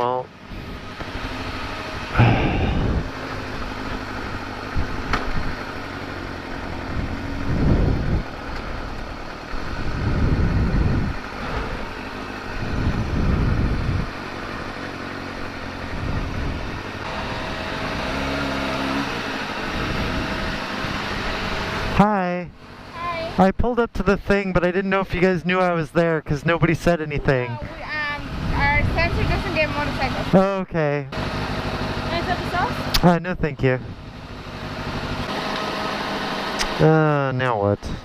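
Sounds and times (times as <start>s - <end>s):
motorcycle engine idling: 0.0s - 17.8s.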